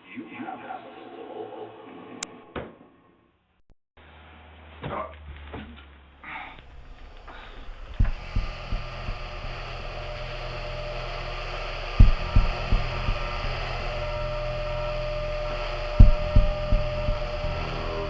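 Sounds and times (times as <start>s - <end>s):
dull low thumps: 6.5s - 18.0s
hiss: 6.5s - 18.0s
steady low hum: 6.5s - 18.0s.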